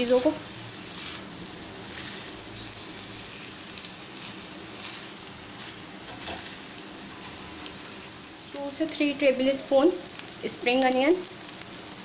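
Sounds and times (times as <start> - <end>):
spatula scraping a wok: 0.0 - 8.1
rice sizzling in a wok: 0.0 - 12.0.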